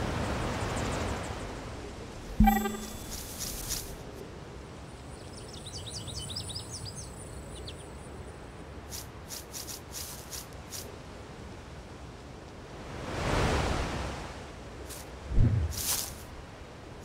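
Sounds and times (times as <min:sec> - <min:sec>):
low ambient rumble: 0:15.2 - 0:16.6.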